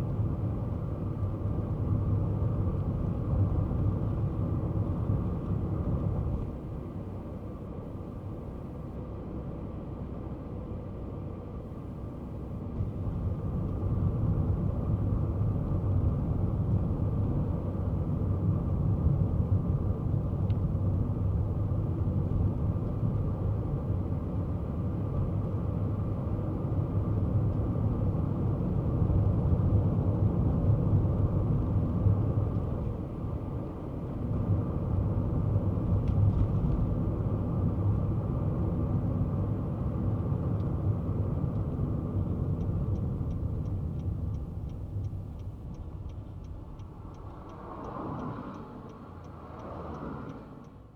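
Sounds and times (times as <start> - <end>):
car engine and road noise: 0.0 - 50.9.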